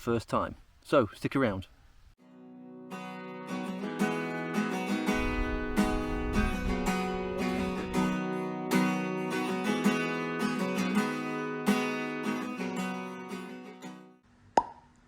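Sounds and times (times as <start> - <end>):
strummed acoustic guitar: 2.2 - 14.2.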